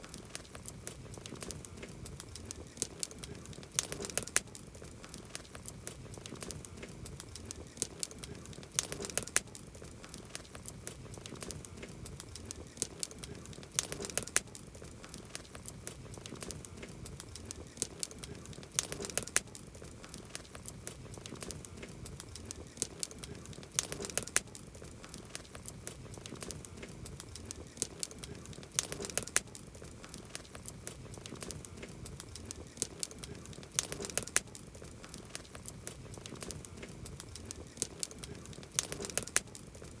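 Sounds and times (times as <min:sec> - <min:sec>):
burning wood snapping and popping: 0:00.0 - 0:40.0.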